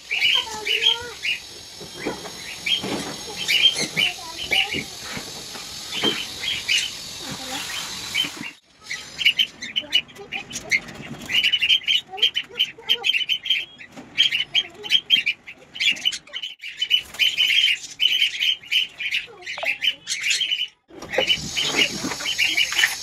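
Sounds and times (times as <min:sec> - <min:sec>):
caged birds squawking and chirping: 0:00.0 - 0:23.0
hiss: 0:00.1 - 0:08.6.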